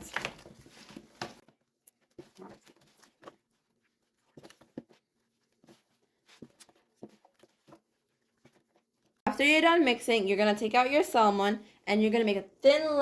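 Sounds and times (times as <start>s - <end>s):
hands squishing vegetables: 0.0s - 9.2s.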